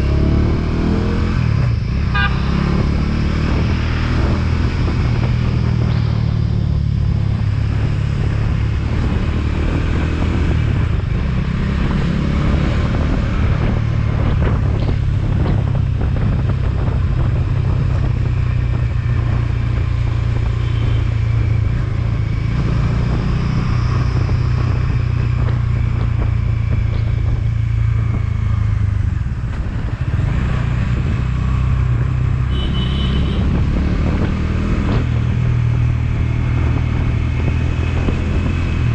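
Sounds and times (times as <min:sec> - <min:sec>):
wind and road noise: 0:00.0 - 0:38.9
motorcycle engine running: 0:10.4 - 0:38.9.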